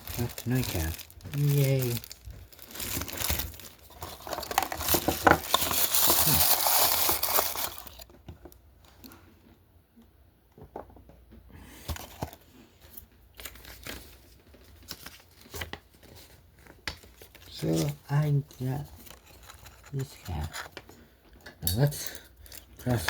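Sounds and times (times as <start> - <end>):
wrapper crinkling: 0.0 - 8.1, 13.3 - 21.0.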